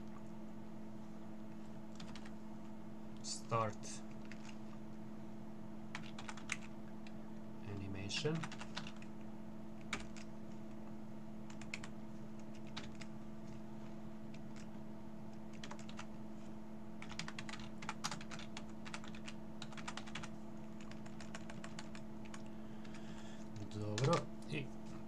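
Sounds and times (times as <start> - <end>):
low electrical hum: 0.0 - 25.0
computer keyboard typing: 1.9 - 2.4, 4.1 - 4.6, 5.9 - 6.7, 8.2 - 9.1, 9.8 - 10.3, 11.5 - 13.1, 14.3 - 14.7, 15.4 - 16.1, 17.0 - 23.0, 23.6 - 24.3.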